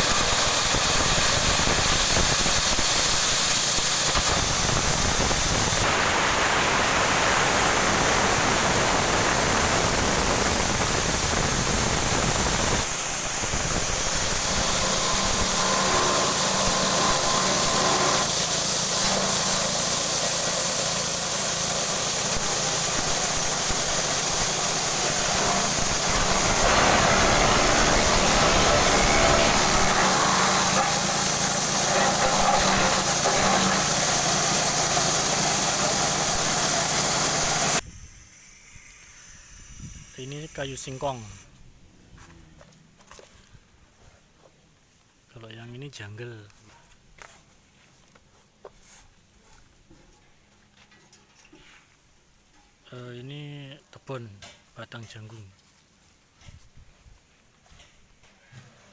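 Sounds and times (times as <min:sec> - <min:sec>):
forage chopper machine running: 0:00.0 - 0:37.8.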